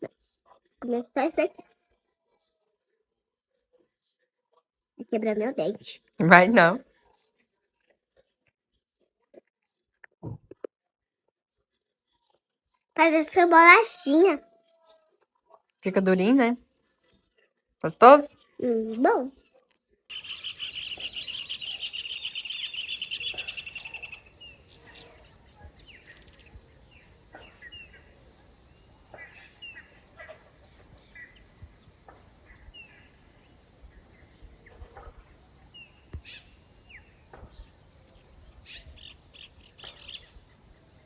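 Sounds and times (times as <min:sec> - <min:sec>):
bird chirps and calls: 0:20.1 - 0:41.0.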